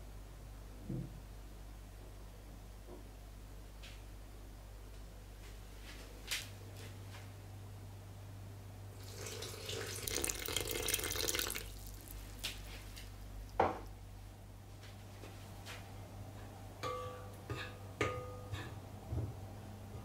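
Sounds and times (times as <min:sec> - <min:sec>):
water pouring into a bowl: 0:09.0 - 0:12.2.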